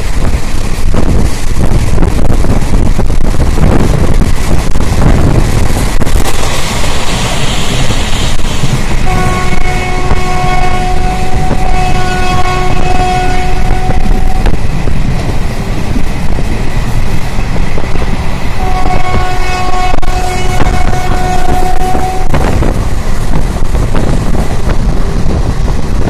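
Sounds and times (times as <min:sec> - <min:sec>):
train wheels rumbling on rail: 0:00.0 - 0:26.0
train horn blasts: 0:07.5 - 0:14.6, 0:18.6 - 0:22.7.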